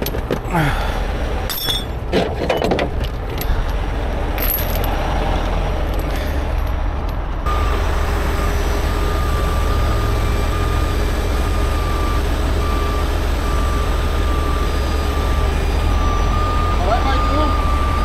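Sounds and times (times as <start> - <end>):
truck diesel engine running: 3.0 - 18.0
backup alarm beeping: 7.5 - 18.0.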